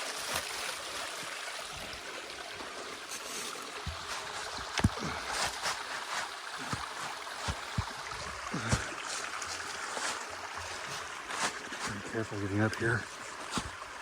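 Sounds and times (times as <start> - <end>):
creek trickling over rock: 0.0 - 14.0
boots splashing through water: 2.6 - 12.3, 13.0 - 14.0.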